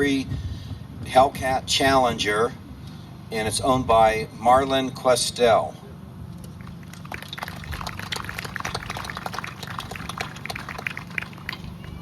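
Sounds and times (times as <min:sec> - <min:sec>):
steady low hum: 0:05.8 - 0:12.0
people clapping unevenly: 0:06.6 - 0:12.0.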